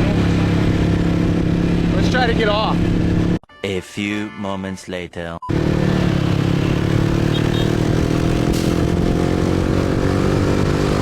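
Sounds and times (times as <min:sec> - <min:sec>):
wind and road noise: 0:00.0 - 0:03.4, 0:05.5 - 0:11.0
motorcycle engine running: 0:05.5 - 0:11.0.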